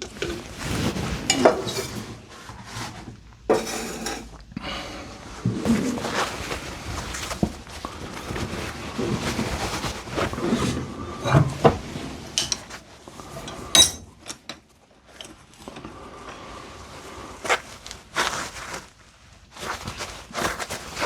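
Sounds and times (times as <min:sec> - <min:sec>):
metal knocking and scraping: 0:03.5 - 0:04.4, 0:13.4 - 0:14.1.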